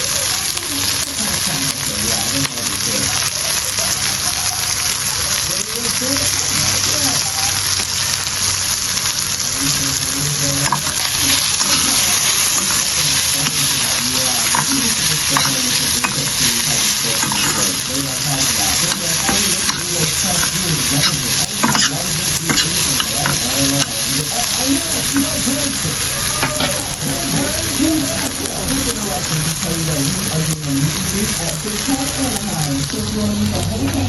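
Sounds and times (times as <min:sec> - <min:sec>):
food sizzling in a pot: 0:00.0 - 0:34.0.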